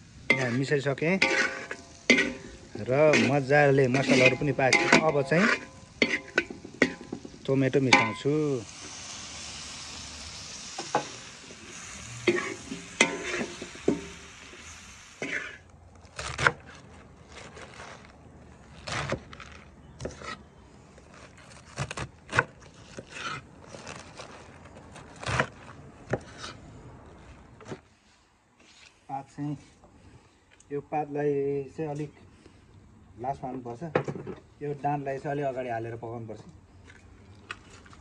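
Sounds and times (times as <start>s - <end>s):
food sizzling in a wok: 0.0s - 15.6s
metal spoon scraping a wok: 0.1s - 8.3s, 10.8s - 14.3s, 15.2s - 15.6s.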